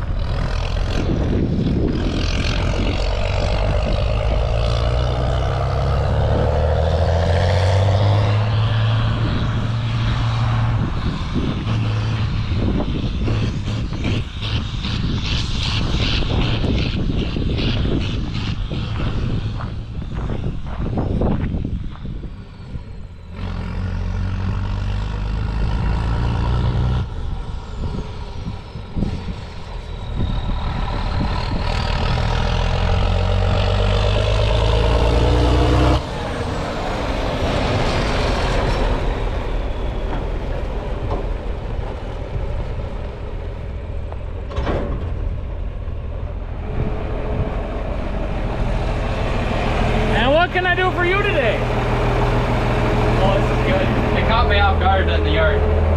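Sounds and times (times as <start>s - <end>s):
heavy engine revving: 0.0s - 21.4s, 22.8s - 55.9s.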